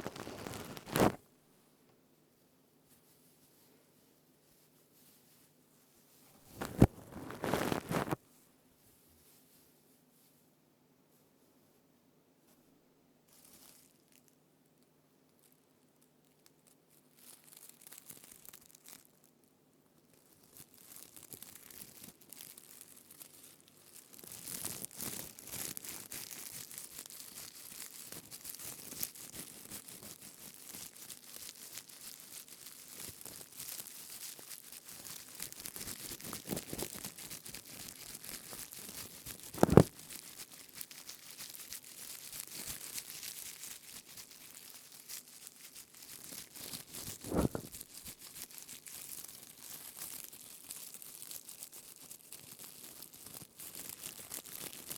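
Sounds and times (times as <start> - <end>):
leaves crinkling and rustling: 0.0 - 1.2, 6.3 - 8.2, 13.3 - 14.4, 16.4 - 19.2, 20.1 - 54.9.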